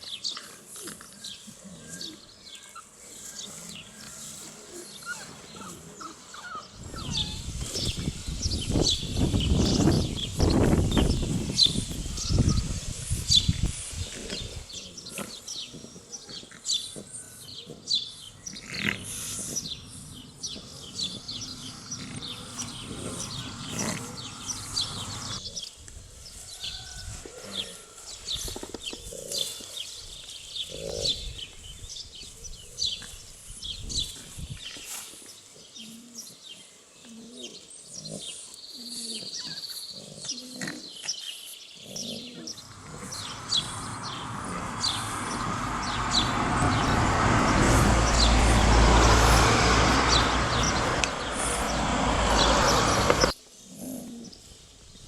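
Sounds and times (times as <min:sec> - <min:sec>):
puppy vocalisations: 0:04.8 - 0:08.0.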